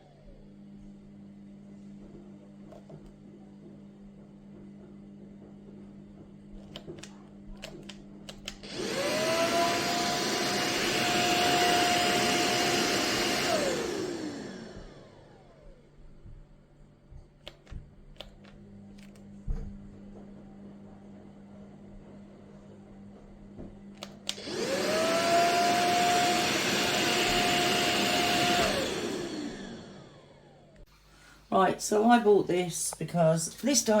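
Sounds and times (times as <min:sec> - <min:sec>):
vacuum motor whining: 0:06.6 - 0:16.0, 0:23.0 - 0:30.9.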